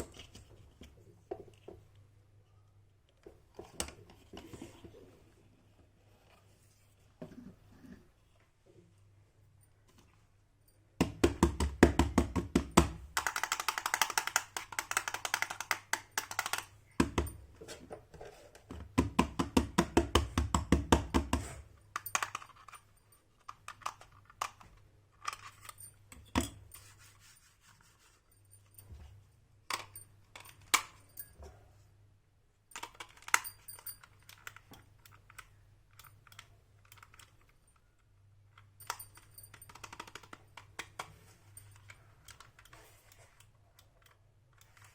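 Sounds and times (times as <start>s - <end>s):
plastic toy pieces clicking: 13.1s - 16.8s, 22.0s - 22.8s, 23.4s - 24.6s, 32.8s - 37.5s, 38.8s - 41.1s.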